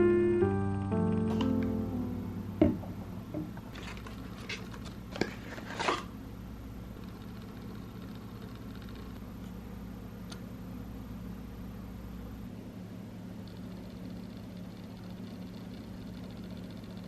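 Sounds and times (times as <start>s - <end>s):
steady low hum: 0.0s - 17.0s
single knock: 2.6s - 3.6s.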